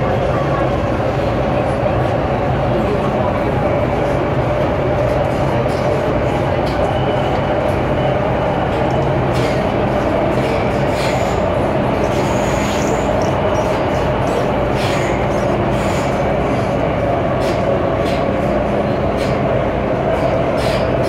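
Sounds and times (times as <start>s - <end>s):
metro train rumbling in tunnel: 0.0s - 21.0s.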